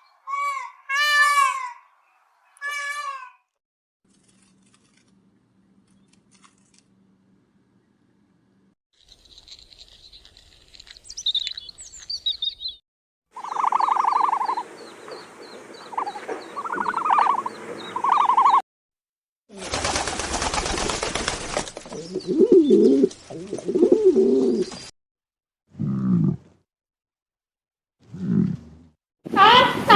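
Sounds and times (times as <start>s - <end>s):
high chirping: 10.0s - 12.8s, 13.4s - 18.6s
wavering animal calls: 13.4s - 14.6s, 15.8s - 18.6s
pulsed bird calls: 13.4s - 18.6s.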